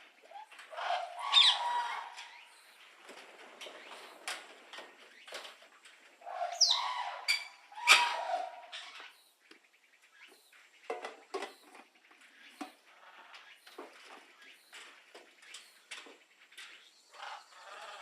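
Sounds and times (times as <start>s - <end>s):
harsh bird chirping calls: 0.2s - 2.8s, 6.2s - 10.9s.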